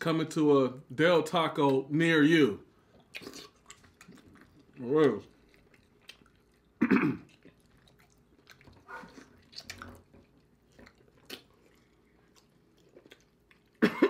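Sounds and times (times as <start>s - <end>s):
chewing and lip-smacking: 2.8s - 13.8s
wet sticky squishes: 7.3s - 13.7s.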